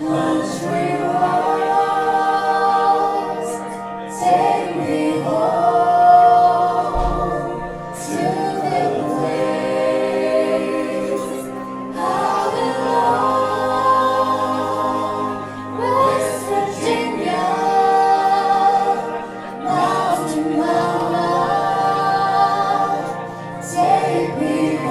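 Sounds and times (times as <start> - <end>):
group of voices singing held notes: 0.0 - 24.9.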